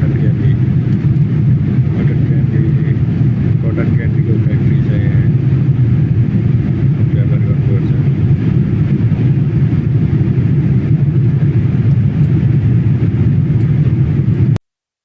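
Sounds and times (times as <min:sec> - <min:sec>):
airliner cabin engine drone: 0:00.0 - 0:14.6.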